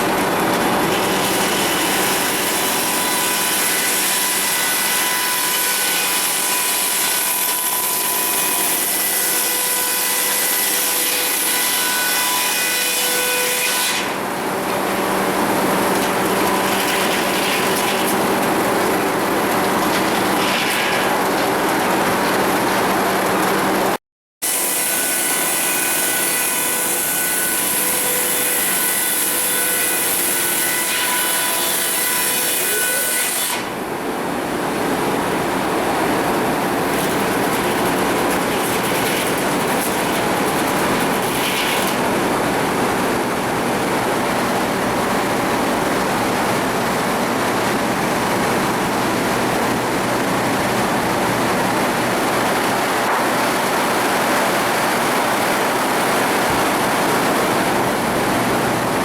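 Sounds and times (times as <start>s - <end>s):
saw cutting wood with whine: 0.0s - 33.9s, 34.7s - 46.6s.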